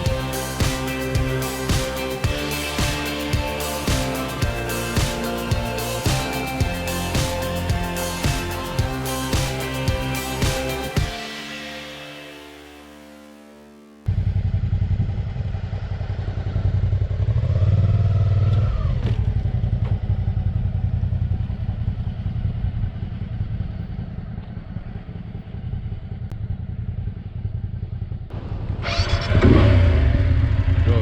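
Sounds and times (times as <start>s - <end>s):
motorcycle engine running: 0.0s - 11.4s, 14.1s - 31.0s
wind and road rumble: 14.1s - 31.0s.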